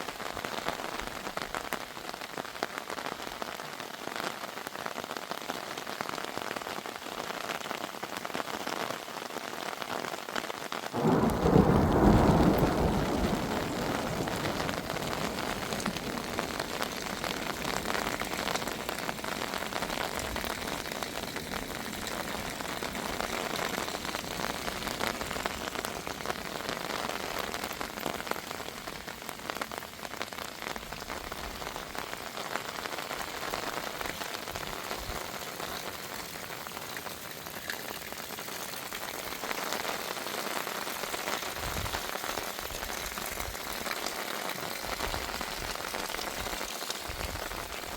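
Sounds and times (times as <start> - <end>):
heavy rain falling: 0.0 - 47.9
thunder rumble: 11.0 - 28.0.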